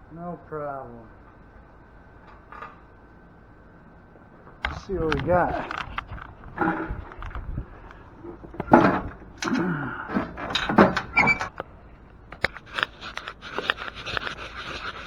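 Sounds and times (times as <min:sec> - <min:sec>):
metal parts clunking: 0:04.7 - 0:11.7
metal scraping rattle: 0:04.7 - 0:11.7.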